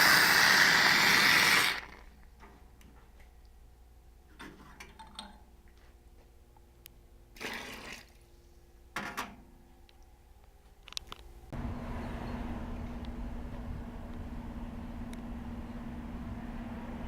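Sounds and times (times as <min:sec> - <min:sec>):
hissing splashing bursts: 0:00.0 - 0:01.9.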